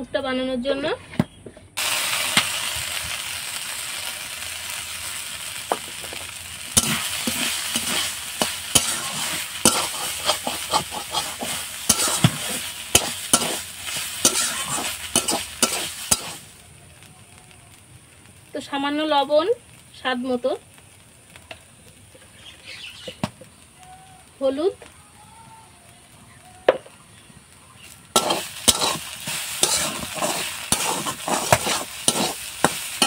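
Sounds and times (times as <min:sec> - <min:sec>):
paste sizzling in hot oil: 0:01.8 - 0:24.7, 0:27.2 - 0:33.0
metal spatula scraping pan: 0:06.8 - 0:16.4, 0:28.1 - 0:33.0.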